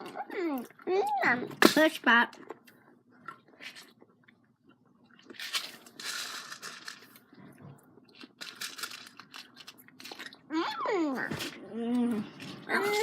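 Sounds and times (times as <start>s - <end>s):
candy wrapper crinkling and tearing: 5.2s - 7.3s, 8.1s - 10.5s.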